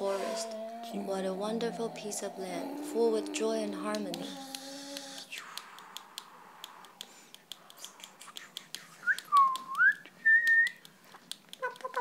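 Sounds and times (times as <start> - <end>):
soft hiss: 4.2 - 11.6
person whistling: 9.0 - 10.8.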